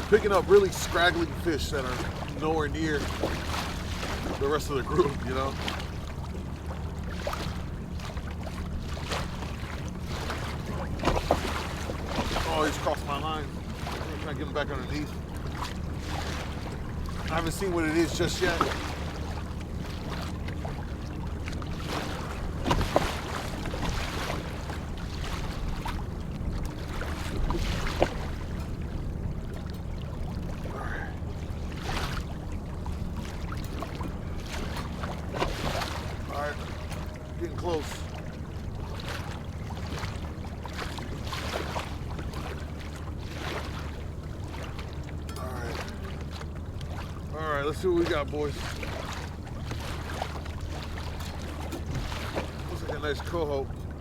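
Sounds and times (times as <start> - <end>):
low hum: 0.0 - 54.0
water lapping against a kayak: 0.0 - 54.0
sharp splashes or knocks: 10.1 - 13.1, 21.7 - 26.0, 26.6 - 28.8, 33.6 - 37.2.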